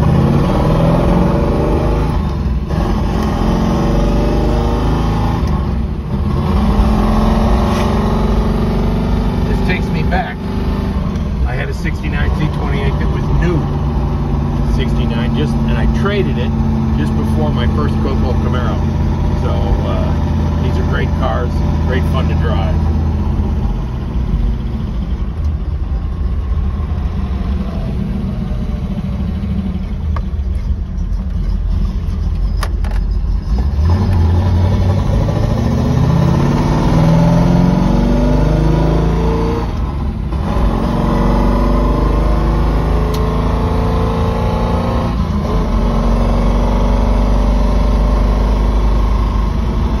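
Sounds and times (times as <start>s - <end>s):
car engine revving: 0.0s - 50.0s.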